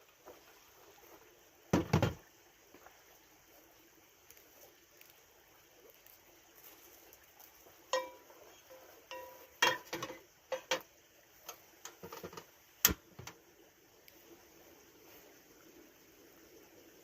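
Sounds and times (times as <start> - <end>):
kitchenware clinks and knocks: 7.9 - 8.2, 9.1 - 10.9.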